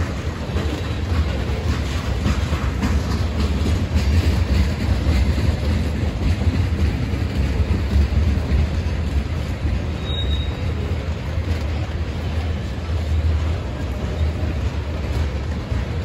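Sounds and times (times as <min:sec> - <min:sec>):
freight train wheels rumbling on rail: 0:00.0 - 0:16.0
high wheel squeal: 0:09.9 - 0:10.9.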